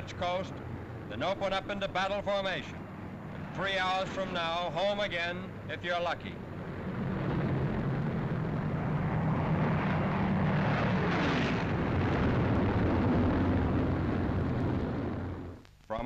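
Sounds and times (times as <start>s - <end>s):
propeller plane engine drone: 0.0s - 15.6s.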